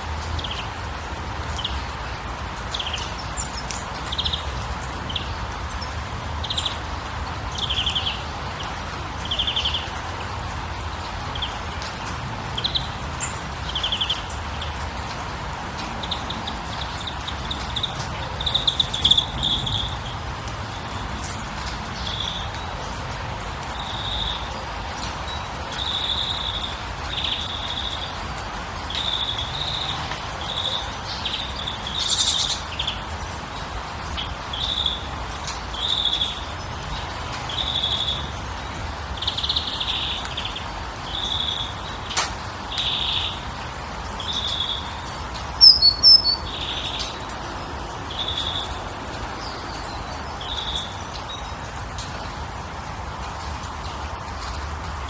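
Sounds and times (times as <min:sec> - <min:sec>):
bird calling: 0:45.6 - 0:47.2.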